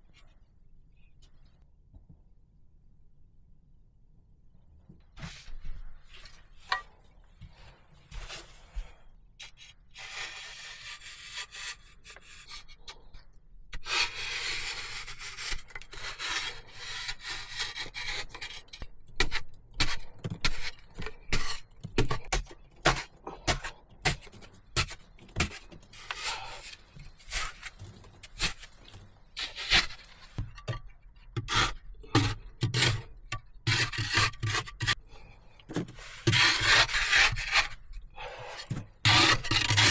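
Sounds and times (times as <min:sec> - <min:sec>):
hand tool scraping wood: 0:13.9 - 0:35.0, 0:35.6 - 0:39.9.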